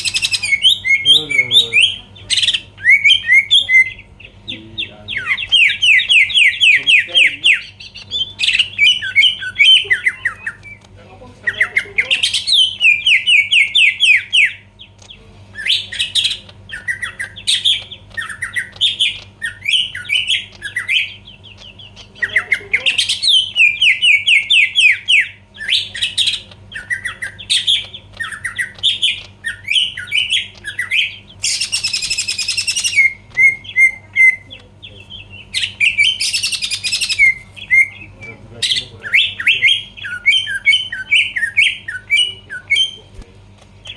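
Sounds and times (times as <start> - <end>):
bird singing trilled phrases: 0.0 - 43.2.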